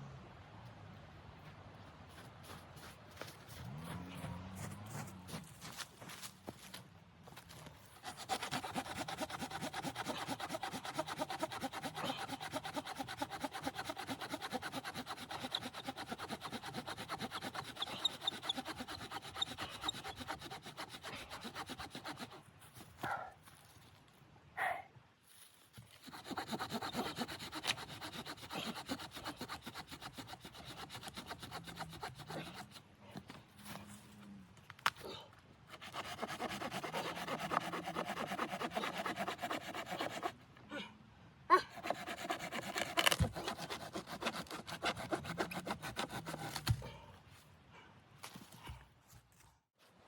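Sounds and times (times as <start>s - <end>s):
hand saw cutting wood: 8.0s - 22.5s, 25.9s - 32.9s, 35.7s - 40.4s, 41.6s - 46.9s.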